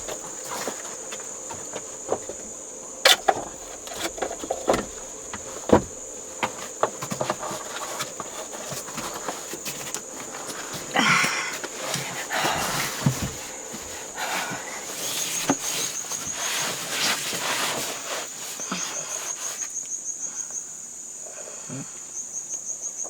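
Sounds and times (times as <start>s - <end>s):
handling clicks and knocks: 0.0s - 17.4s
insects trilling: 0.0s - 23.0s.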